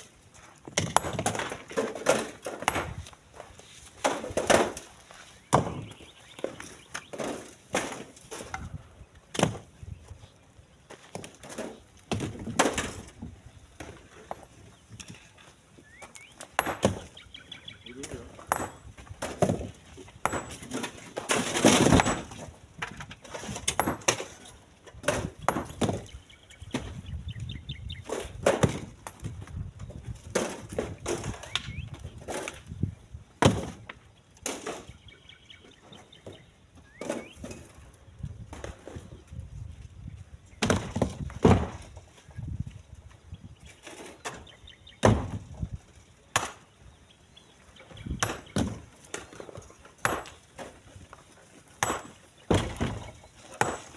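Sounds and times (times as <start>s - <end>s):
stones knocking and clattering: 0.4s - 3.2s, 18.3s - 24.4s.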